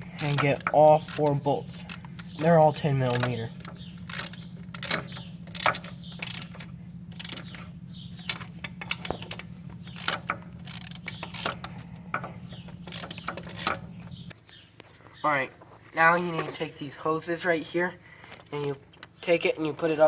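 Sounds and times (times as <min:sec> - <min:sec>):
steady low hum: 0:00.0 - 0:15.9
ratchet clicking: 0:00.1 - 0:07.6, 0:08.2 - 0:13.8.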